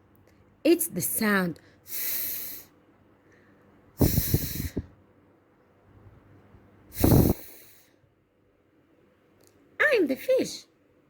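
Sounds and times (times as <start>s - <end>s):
woman making breathy f sound: 4.0s - 5.0s, 6.9s - 7.8s
breath pops on microphone: 7.0s - 7.5s.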